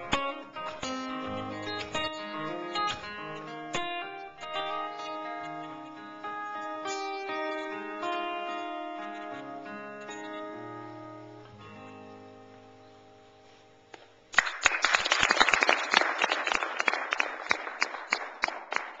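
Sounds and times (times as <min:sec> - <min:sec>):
acoustic guitar chord ringing: 0:00.0 - 0:13.9
audience applause: 0:14.4 - 0:19.0.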